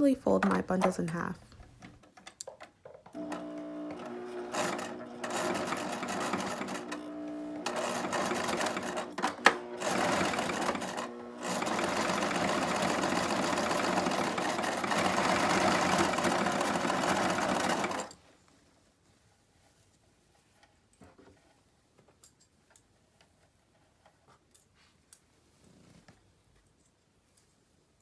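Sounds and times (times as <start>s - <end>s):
sewing machine running: 3.2s - 18.2s.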